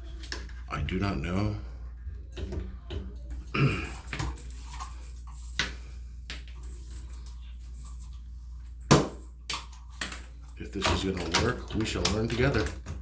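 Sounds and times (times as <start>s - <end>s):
plumbing parts clicking: 9.5s - 13.0s.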